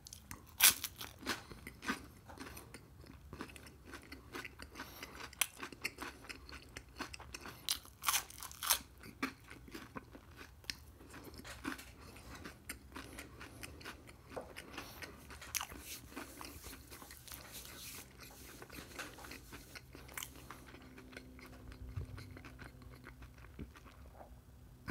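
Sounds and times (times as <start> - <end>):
chewing crunchy pastry: 0.0 - 24.9.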